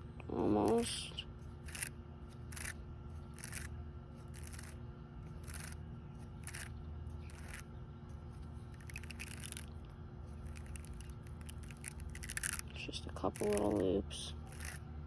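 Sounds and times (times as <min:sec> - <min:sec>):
fishing line scraping off reel: 0:01.6 - 0:01.9, 0:02.5 - 0:03.7, 0:04.3 - 0:04.8, 0:05.4 - 0:05.8, 0:06.4 - 0:07.7, 0:08.7 - 0:09.8, 0:10.4 - 0:12.7, 0:14.5 - 0:14.8.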